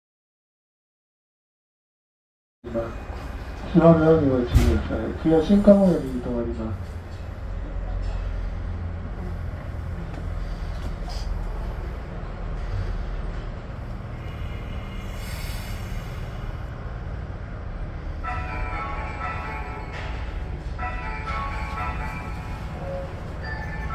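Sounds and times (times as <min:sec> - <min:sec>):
train wheels rumbling: 0:02.7 - 0:23.9
ringing tone: 0:18.2 - 0:23.9.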